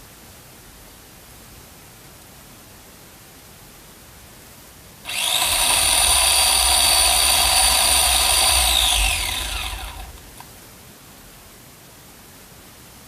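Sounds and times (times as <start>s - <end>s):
electric chainsaw running: 5.1s - 10.4s.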